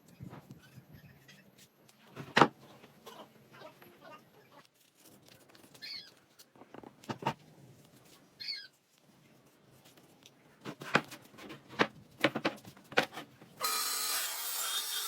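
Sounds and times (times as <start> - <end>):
power tool whining: 13.6 - 15.0.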